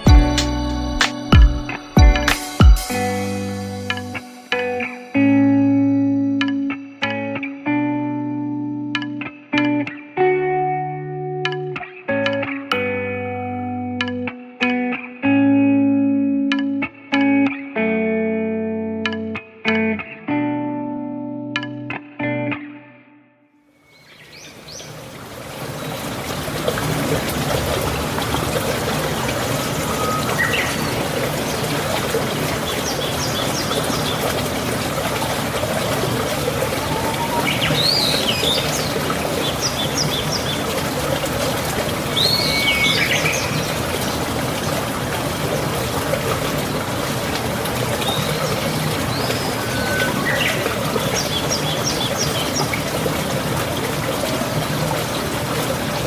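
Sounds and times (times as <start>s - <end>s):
running water: 0.0s - 7.4s, 23.9s - 56.0s
birds chirping and trilling: 23.8s - 25.0s, 29.5s - 34.4s, 35.9s - 40.8s, 42.1s - 44.2s, 48.0s - 52.8s.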